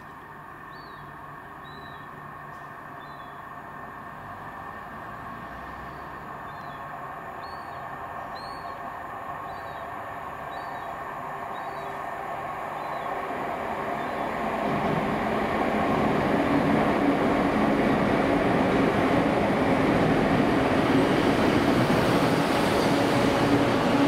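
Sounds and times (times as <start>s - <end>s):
diesel train approaching: 0.0s - 24.0s
small bird chirping: 1.6s - 2.1s, 7.4s - 8.8s.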